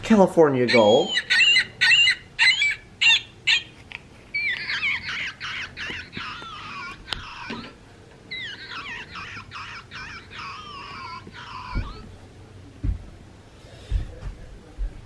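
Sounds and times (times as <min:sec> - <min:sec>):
recorded gull calls: 0:00.7 - 0:03.6, 0:04.4 - 0:12.1
wavering gull cries: 0:00.7 - 0:03.6, 0:04.4 - 0:07.7, 0:08.3 - 0:12.1.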